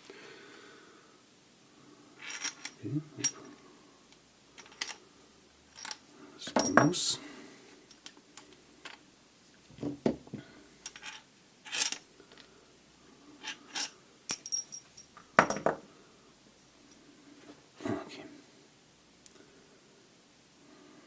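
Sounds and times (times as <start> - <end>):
small metal parts clinking: 2.2 - 3.5, 4.6 - 5.0, 5.7 - 7.1, 10.8 - 12.1, 13.4 - 15.8.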